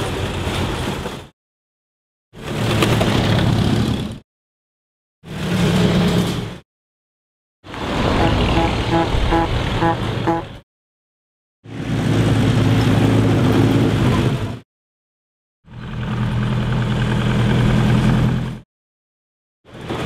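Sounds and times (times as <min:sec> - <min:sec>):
old car engines driving past: 0:02.4 - 0:04.2, 0:05.3 - 0:06.6, 0:07.7 - 0:10.5, 0:11.7 - 0:14.6.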